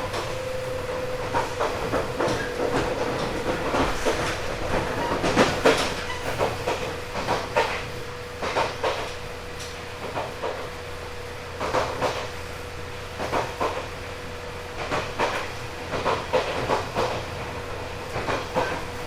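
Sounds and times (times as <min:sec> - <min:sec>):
wheels clacking over rail joints: 0:00.0 - 0:10.6, 0:14.8 - 0:19.0
train motor whine and rumble: 0:00.0 - 0:19.0.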